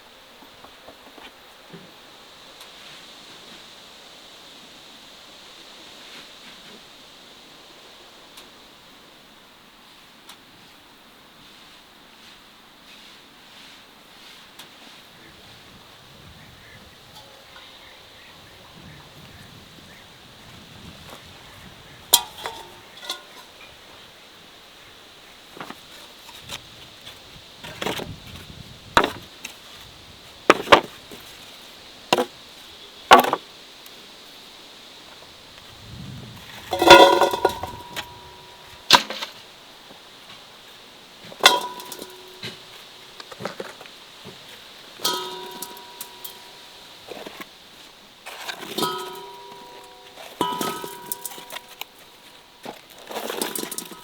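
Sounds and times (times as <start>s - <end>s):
light metal clinks: 22.2s - 23.6s, 41.4s - 42.8s, 45.0s - 46.7s, 48.7s - 52.4s
metal objects knocking together: 22.2s - 23.6s, 36.7s - 39.2s, 41.4s - 42.6s, 45.0s - 46.6s, 48.5s - 52.1s, 53.1s - 54.0s.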